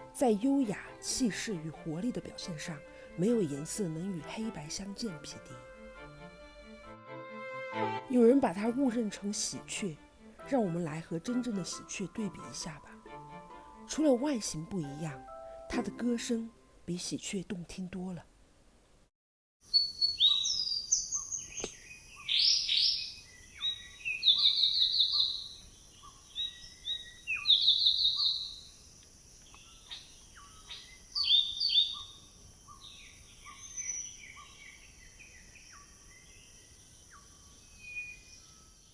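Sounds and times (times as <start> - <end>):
songbird singing whistled phrases: 19.7 - 28.6, 29.5 - 35.9, 37.1 - 38.6.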